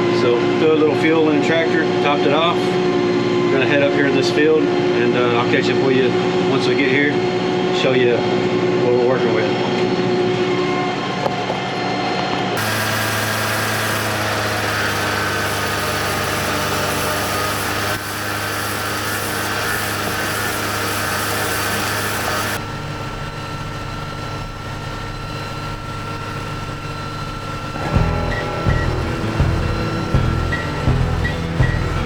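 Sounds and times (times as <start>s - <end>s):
tractor diesel engine running: 12.6s - 32.0s.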